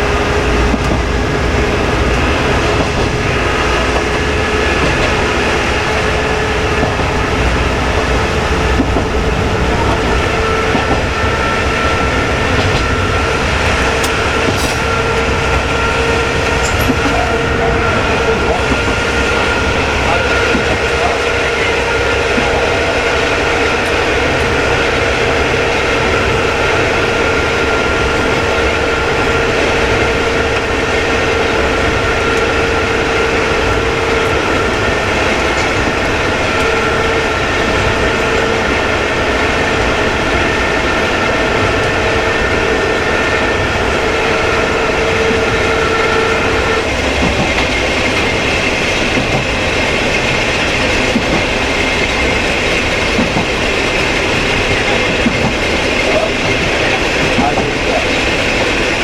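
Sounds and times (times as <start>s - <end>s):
diesel railcar engine running: 0.0s - 59.0s
wheels on rails: 0.0s - 59.0s.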